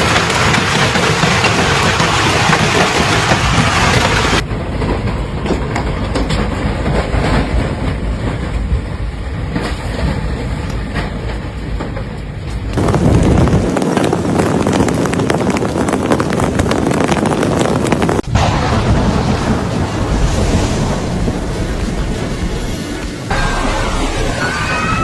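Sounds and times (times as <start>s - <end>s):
hail falling: 0.0s - 4.4s, 12.7s - 23.1s
wind roaring: 0.0s - 25.0s.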